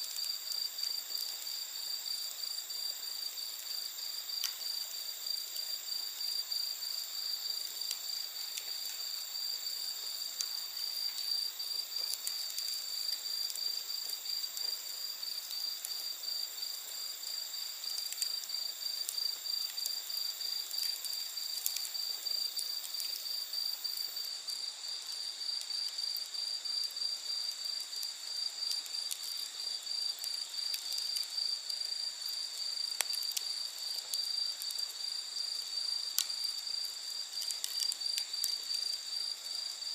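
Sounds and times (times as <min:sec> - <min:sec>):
bonfire crackling: 0:00.0 - 0:39.9
crickets and insects chirring: 0:00.0 - 0:39.9.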